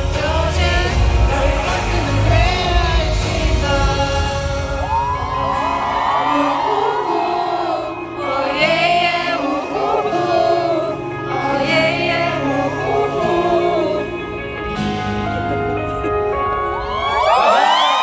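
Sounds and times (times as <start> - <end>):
backing track with bass: 0.0 - 6.3
live pop singing: 0.0 - 18.0.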